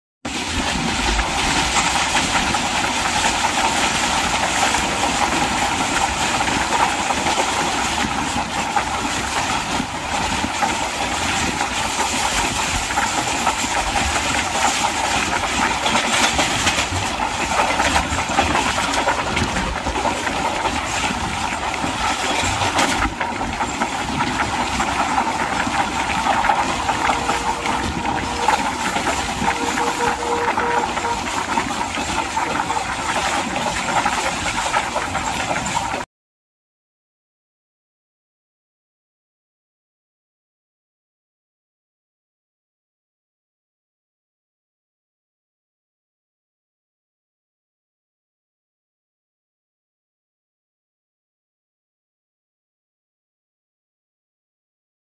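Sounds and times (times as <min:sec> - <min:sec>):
moving train rushing noise: 0:00.3 - 0:36.0.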